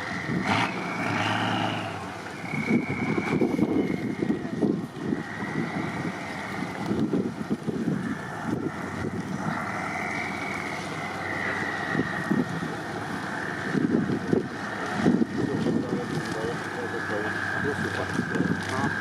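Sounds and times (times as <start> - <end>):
high whine: 0.0 - 19.0
truck engine surging: 0.0 - 19.0
wind buffeting microphone: 0.0 - 19.0.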